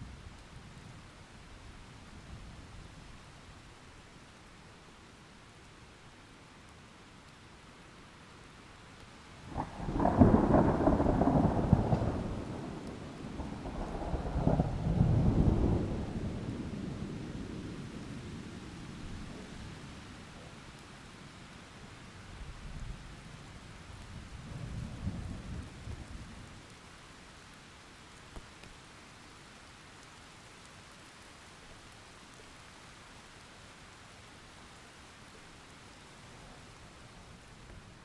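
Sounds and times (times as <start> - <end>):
steady rain: 0.0 - 38.0
rolling thunder: 9.5 - 17.8.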